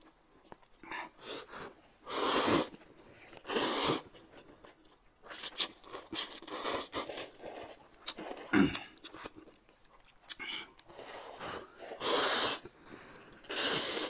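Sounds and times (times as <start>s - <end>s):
people slurping noodles: 3.4s - 4.1s, 10.9s - 12.7s, 13.4s - 14.0s.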